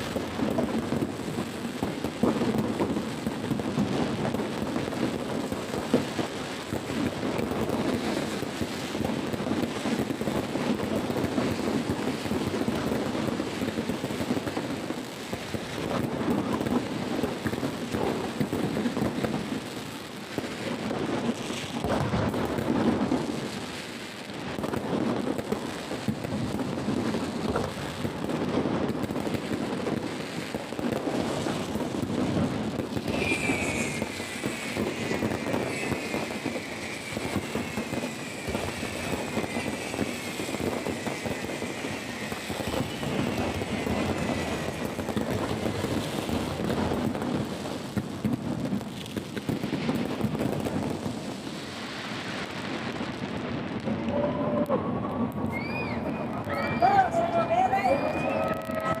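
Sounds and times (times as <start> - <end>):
fireworks booming and crackling: 0.0 - 59.0
falling whistling tone: 33.1 - 42.8, 55.5 - 59.0.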